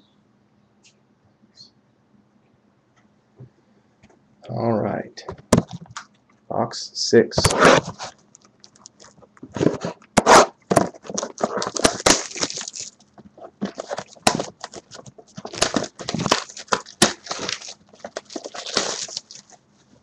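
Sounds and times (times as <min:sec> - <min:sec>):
cardboard and plastic wrapping ripping: 0:07.4 - 0:19.6.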